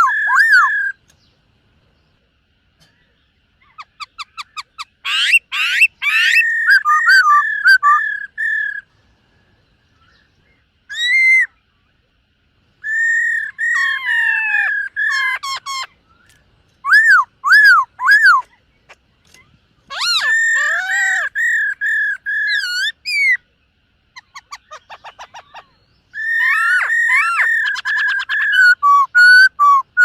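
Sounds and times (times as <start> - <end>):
bird singing whistled phrases: 0.0 - 1.0, 3.7 - 8.8, 10.9 - 11.6, 12.8 - 18.5, 19.3 - 23.4, 24.2 - 30.0.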